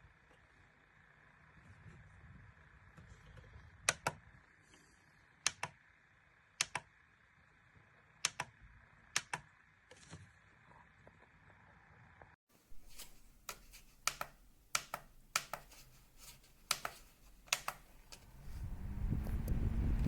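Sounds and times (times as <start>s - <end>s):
faint low hum: 0.0s - 20.0s
sharp double clicks: 16.6s - 18.3s.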